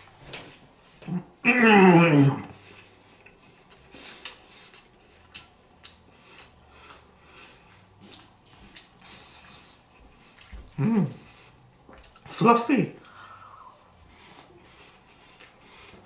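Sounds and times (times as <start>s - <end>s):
wet chewing mouth noises: 2.4s - 12.4s, 13.0s - 16.0s.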